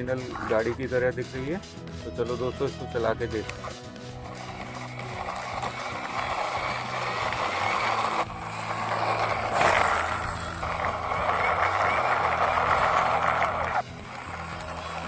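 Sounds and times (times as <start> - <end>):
toy racing car motor: 0.0 - 1.0, 3.0 - 15.0.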